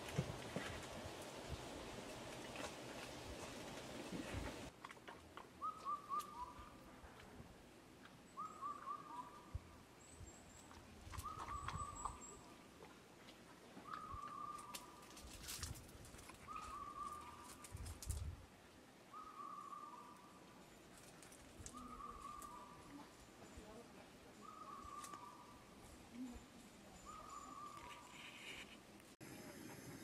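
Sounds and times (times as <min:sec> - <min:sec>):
distant bird hooting call: 0:08.4 - 0:09.6, 0:19.1 - 0:20.3, 0:21.8 - 0:22.9.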